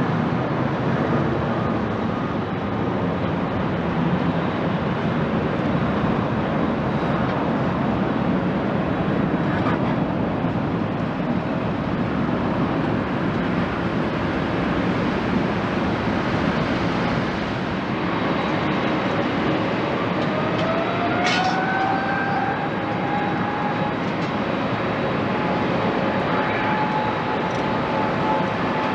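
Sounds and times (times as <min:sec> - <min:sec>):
jet engines roaring: 0:00.0 - 0:28.9.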